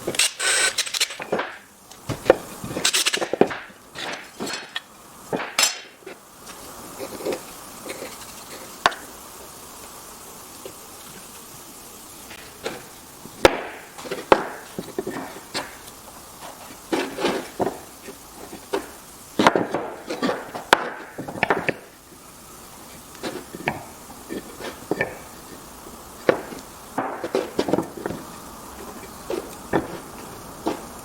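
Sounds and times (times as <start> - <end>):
wooden pieces knocking: 0.0 - 6.0, 18.5 - 21.9, 23.2 - 31.0.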